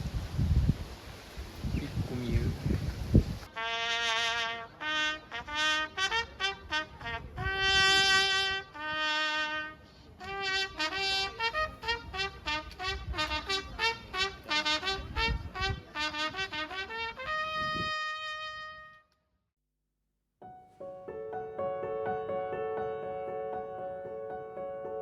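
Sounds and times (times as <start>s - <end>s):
wind rumble on microphone: 0.0s - 3.5s, 7.0s - 8.2s, 14.8s - 16.0s, 17.3s - 18.2s
trumpet-like brass melody: 3.5s - 19.2s.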